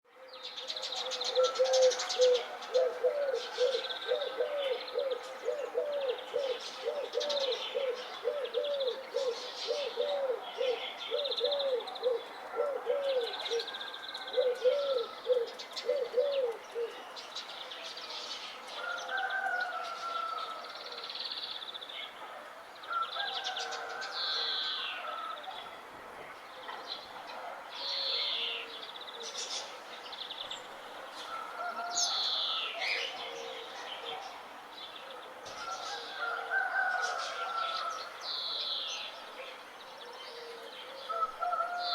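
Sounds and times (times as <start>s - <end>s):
low cooing bird call: 0.3s - 17.1s, 22.9s - 25.7s, 27.8s - 29.8s, 31.3s - 34.4s, 40.0s - 41.9s.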